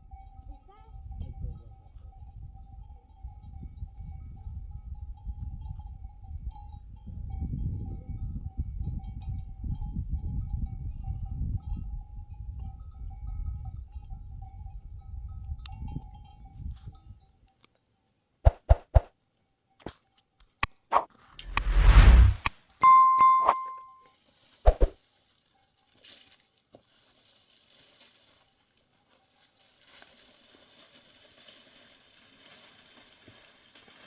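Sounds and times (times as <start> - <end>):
low wind-like rumble: 21.4 - 22.4
steady high tone: 21.5 - 23.9.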